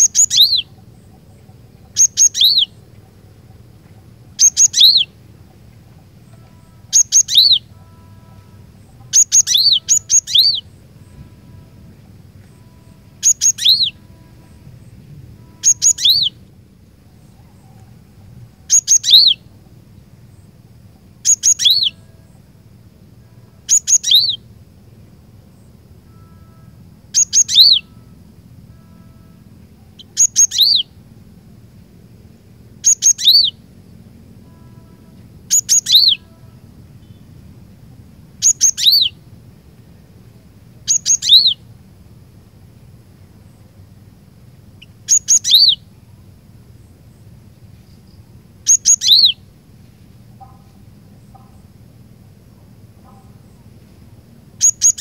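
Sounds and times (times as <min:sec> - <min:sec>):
bird singing high whistled phrases: 0:00.0 - 0:00.8, 0:01.9 - 0:02.8, 0:04.4 - 0:05.2, 0:06.3 - 0:11.2, 0:12.5 - 0:14.6, 0:15.4 - 0:16.4, 0:18.7 - 0:19.5, 0:21.2 - 0:22.3, 0:23.6 - 0:24.5, 0:26.0 - 0:31.0, 0:32.8 - 0:33.6, 0:34.5 - 0:37.3, 0:38.4 - 0:39.3, 0:40.8 - 0:41.7, 0:44.8 - 0:46.1, 0:48.6 - 0:49.5, 0:54.6 - 0:55.0
steady low hum: 0:00.0 - 0:55.0.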